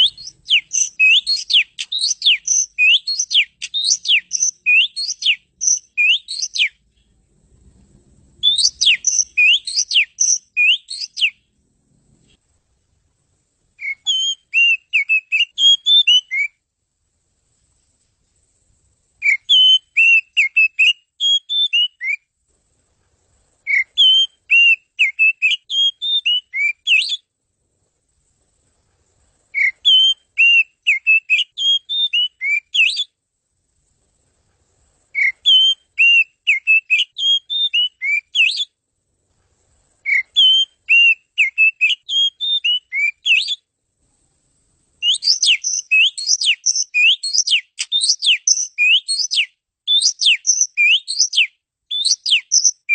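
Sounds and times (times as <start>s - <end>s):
bird singing whistled notes: 0.0s - 7.2s, 8.4s - 11.5s, 13.8s - 16.6s, 19.2s - 22.3s, 23.6s - 27.3s, 29.5s - 33.2s, 35.1s - 38.8s, 40.0s - 43.7s, 45.0s - 52.9s.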